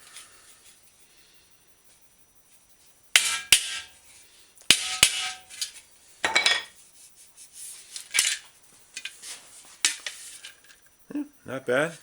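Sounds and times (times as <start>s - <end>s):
hammer striking metal fender: 3.2s - 4.0s, 4.7s - 5.7s.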